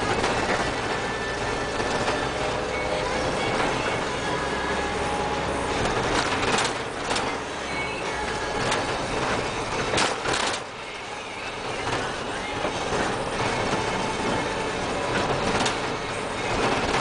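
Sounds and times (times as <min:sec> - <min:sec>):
diesel van running: 0:00.0 - 0:17.0
sharp clatters: 0:05.7 - 0:07.4, 0:08.5 - 0:10.9.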